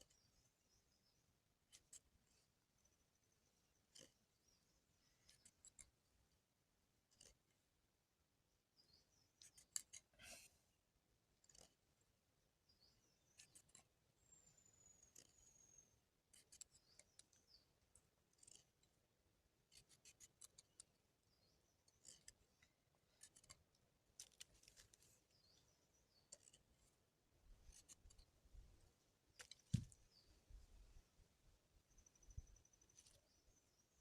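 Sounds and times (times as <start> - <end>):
faint high clicks and ticks: 3.8 - 6.4, 13.3 - 19.0, 19.7 - 26.9, 29.3 - 30.6.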